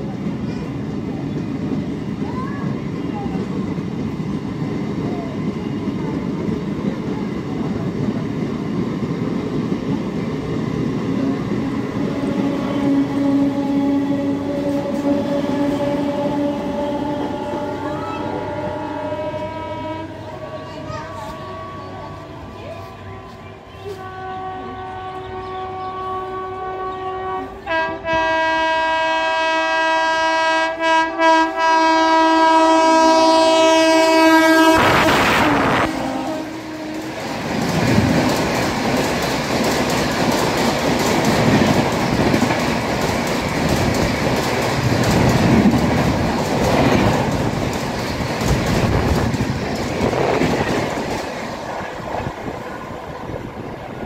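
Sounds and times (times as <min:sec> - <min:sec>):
train horn: 0:11.1 - 0:22.5, 0:23.8 - 0:37.6
train wheels clattering over rail joints: 0:36.9 - 0:51.7.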